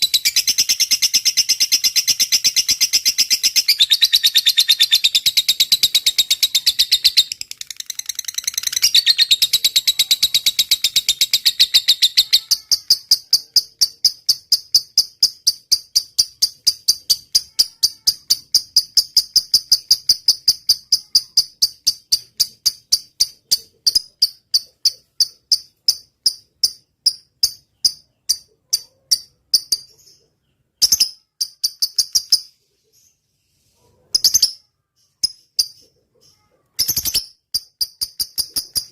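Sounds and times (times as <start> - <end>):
bird trilling: 1.7 - 15.4.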